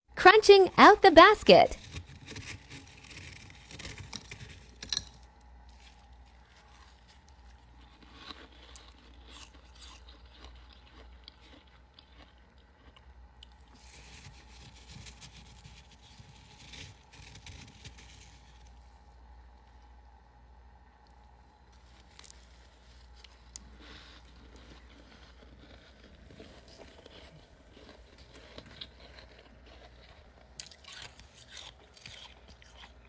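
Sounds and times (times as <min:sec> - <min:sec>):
frost scraping: 0:00.5 - 0:07.8, 0:13.7 - 0:18.9
frost crunching and crackling: 0:00.5 - 0:19.9, 0:21.1 - 0:33.0.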